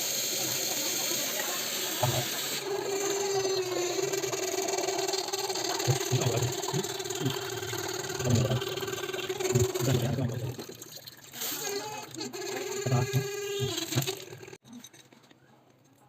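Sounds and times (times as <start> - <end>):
water tap running: 0.0 - 14.6.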